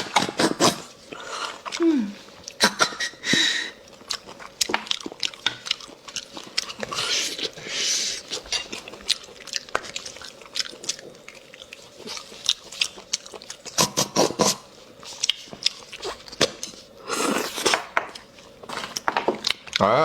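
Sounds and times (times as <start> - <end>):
chewing: 0.0 - 20.0
loud slurps: 13.7 - 14.7, 17.0 - 17.8.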